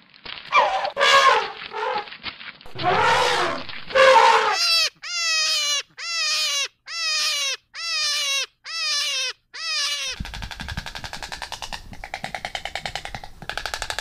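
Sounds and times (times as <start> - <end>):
harsh noisy animal call: 0.5 - 2.1, 2.7 - 10.4
pitched animal call: 0.5 - 2.1, 2.7 - 10.9.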